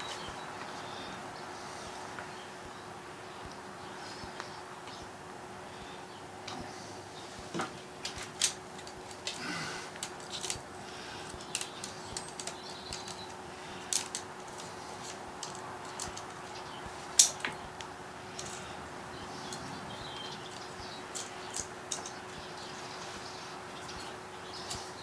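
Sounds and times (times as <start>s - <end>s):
faint steady hum: 0.0s - 25.0s
small tools clicking and tapping: 7.5s - 25.0s.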